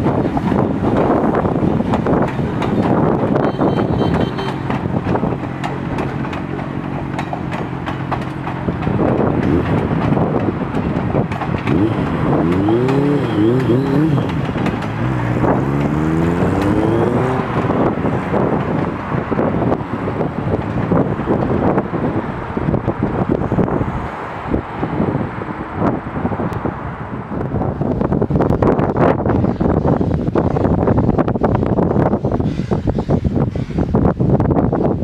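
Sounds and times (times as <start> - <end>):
wheels clicking over rail joints: 0.0 - 24.0
train wheel rumble: 0.0 - 35.0
wind on microphone: 0.0 - 35.0.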